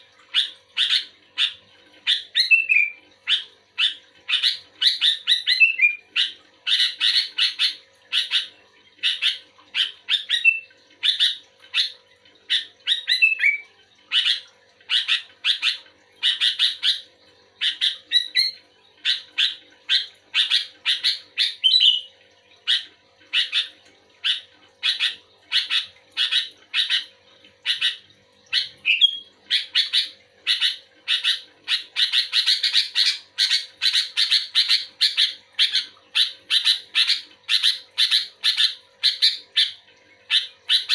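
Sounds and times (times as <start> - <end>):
bulbul singing chattering phrases: 0.3 - 40.9.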